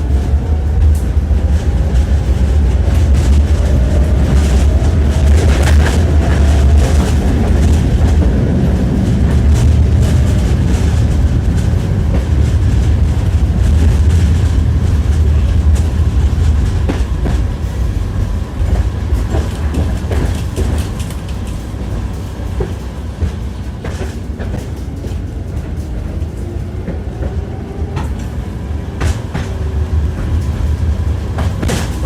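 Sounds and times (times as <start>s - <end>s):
tram rumbling: 0.0s - 32.0s
wheels clattering over rail joints: 0.0s - 32.0s.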